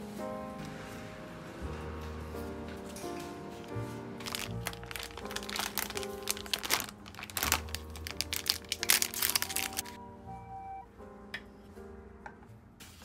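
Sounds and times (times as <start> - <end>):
soft background music: 0.0 - 13.0
crinkling and crackling: 2.1 - 10.0.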